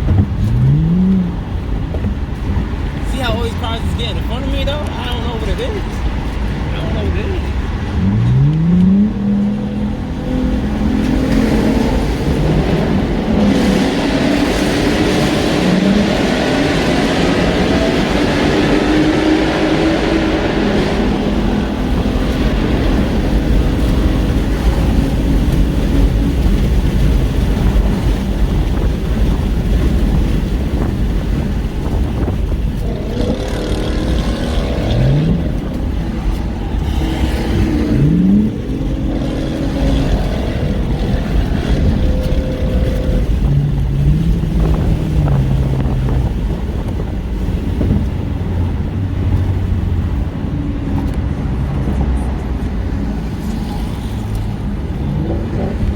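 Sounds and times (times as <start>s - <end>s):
engine revving: 0.0s - 2.2s, 2.8s - 28.2s, 32.1s - 47.0s
car engine and road noise: 0.0s - 55.9s.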